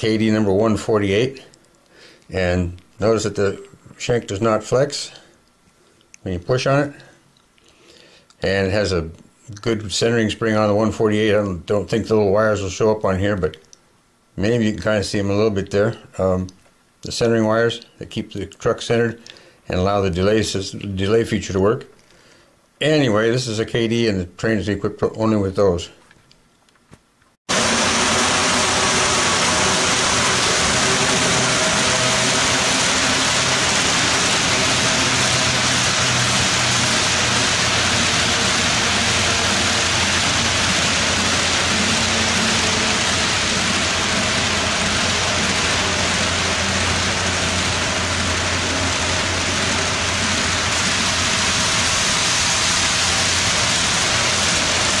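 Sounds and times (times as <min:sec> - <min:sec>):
static hiss: 0:27.5 - 0:55.0.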